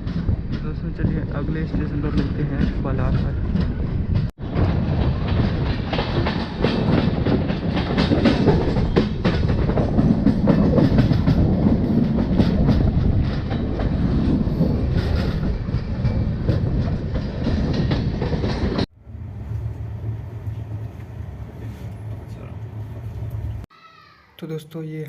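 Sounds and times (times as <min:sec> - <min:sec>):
train wheels clacking on rails: 0:00.0 - 0:18.9.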